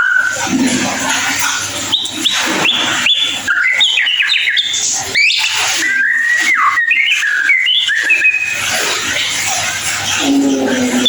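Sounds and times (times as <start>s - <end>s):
songbird whistling and chirping: 1.9s - 9.3s.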